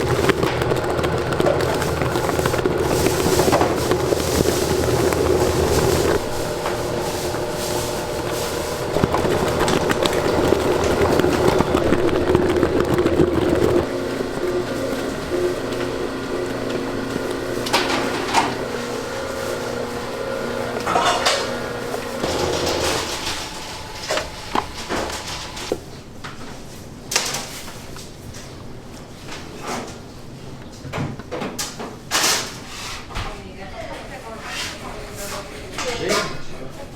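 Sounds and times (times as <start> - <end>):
clicks and clatter: 0.0 - 13.9
machine humming: 0.0 - 25.7
kitchen background noise: 0.0 - 36.9.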